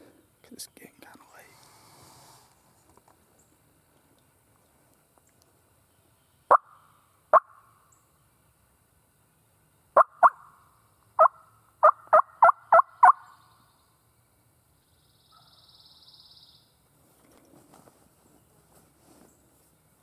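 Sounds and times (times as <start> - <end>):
soft rustling: 17.0 - 20.0.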